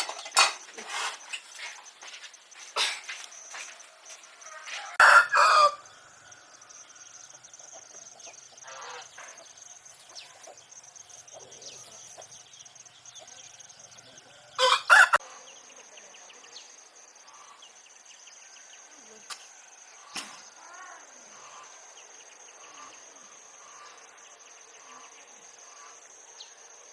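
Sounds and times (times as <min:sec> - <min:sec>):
faint chirps: 0:00.0 - 0:26.9
high insect drone: 0:00.1 - 0:26.9
chickens squawking: 0:14.6 - 0:15.2.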